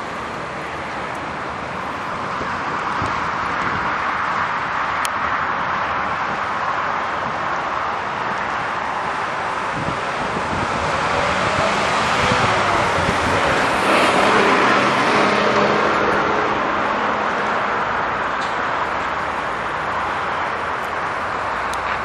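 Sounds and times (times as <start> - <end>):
road traffic noise: 0.0 - 22.0
vehicle passing: 7.8 - 22.0.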